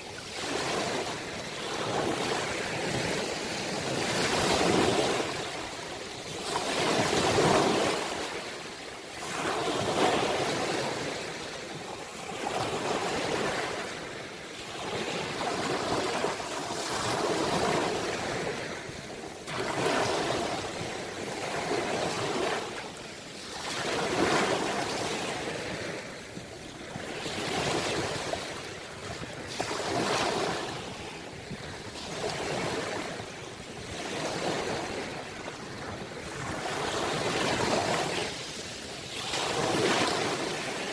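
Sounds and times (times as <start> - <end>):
sea waves surging: 27.0 - 40.9.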